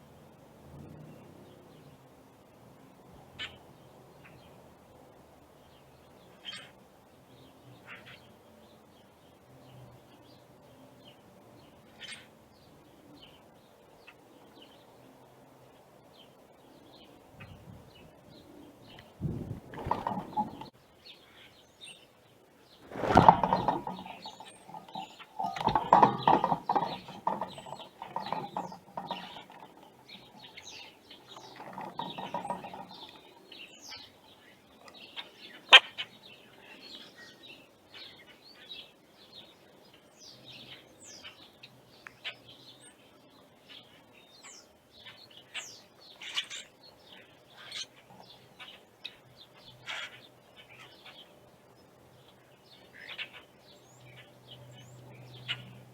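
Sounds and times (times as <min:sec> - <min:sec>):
small birds chirping: 0:16.0 - 0:55.9.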